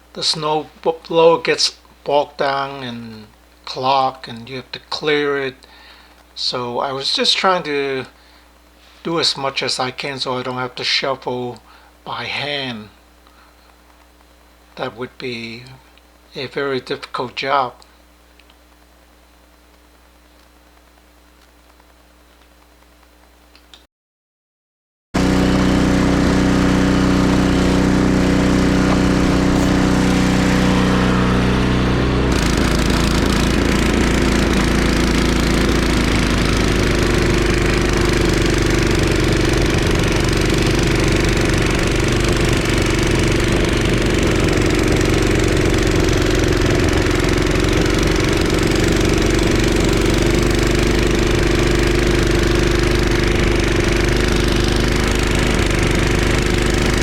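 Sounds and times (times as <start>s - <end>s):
snowblower engine running: 25.2s - 57.0s.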